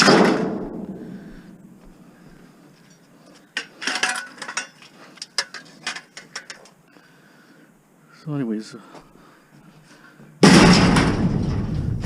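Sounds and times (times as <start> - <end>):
metallic clattering and rattling: 3.6 - 6.7, 10.4 - 12.0.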